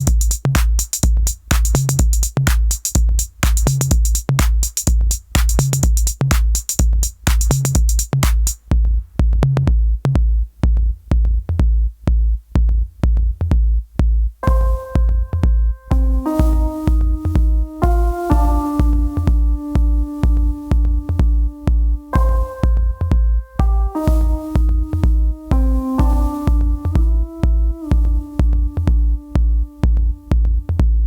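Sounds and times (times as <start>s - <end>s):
hi-hat and snare hits: 0.0s - 8.8s
kick drum: 0.0s - 31.0s.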